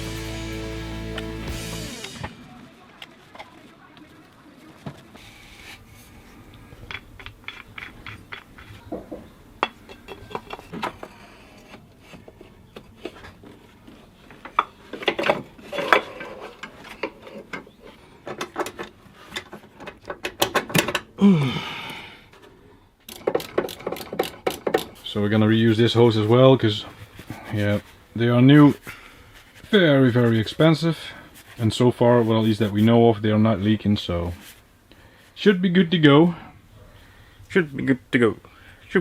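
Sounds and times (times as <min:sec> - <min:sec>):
hand tools and metal rattling: 0:06.7 - 0:21.2, 0:22.3 - 0:27.9.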